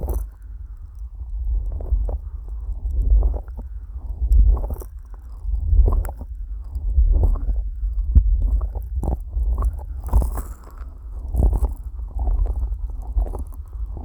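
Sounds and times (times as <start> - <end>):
low rumble: 5.4 - 10.4, 11.0 - 14.0.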